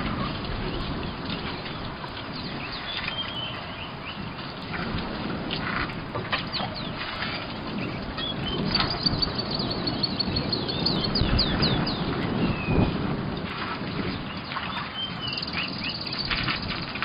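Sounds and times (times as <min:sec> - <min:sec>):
high bird chirps: 0:08.2 - 0:12.8, 0:14.7 - 0:16.7.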